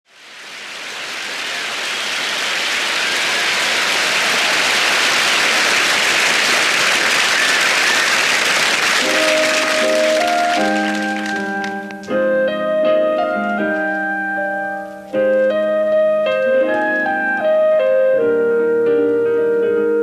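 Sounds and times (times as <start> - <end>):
steady rushing hiss: 0.1 - 19.1
electric piano chords: 7.4 - 20.0.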